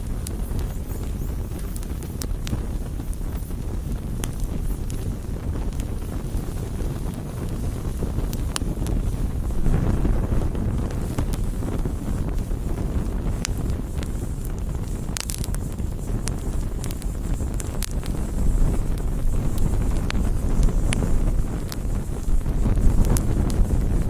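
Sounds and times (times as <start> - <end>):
fire pops: 0.0 - 24.0
wood fire crackling: 0.0 - 24.0
low rumble: 9.1 - 12.4.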